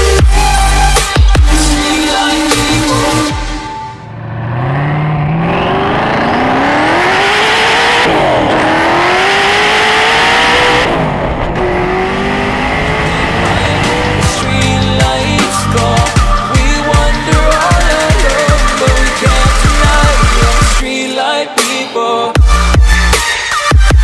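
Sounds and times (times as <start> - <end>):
car engine accelerating: 4.0 - 20.8.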